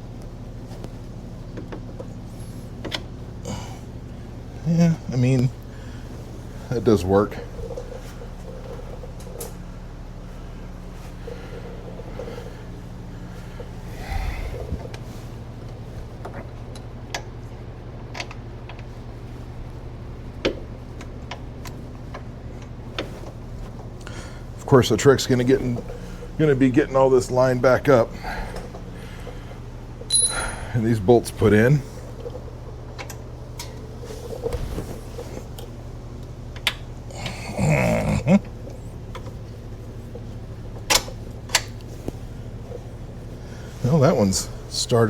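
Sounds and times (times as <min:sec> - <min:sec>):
steady electrical hum: 0:00.0 - 0:45.0
person grunting: 0:37.1 - 0:38.5.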